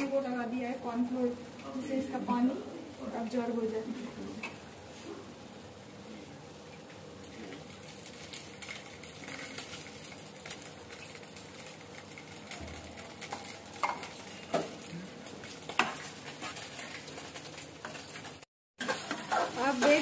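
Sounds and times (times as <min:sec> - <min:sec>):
food sizzling in oil: 0:06.4 - 0:20.0.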